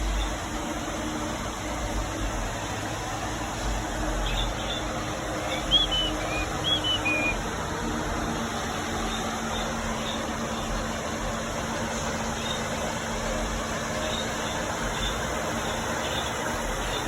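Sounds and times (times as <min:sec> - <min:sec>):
steady background hum: 0:00.0 - 0:17.0
small birds chirping: 0:04.0 - 0:07.4, 0:14.0 - 0:17.0.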